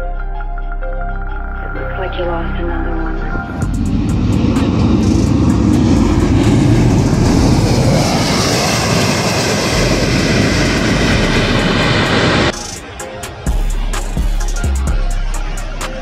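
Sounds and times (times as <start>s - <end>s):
airliner engines roaring: 1.8s - 16.0s
engine whine rising in pitch: 2.8s - 13.2s.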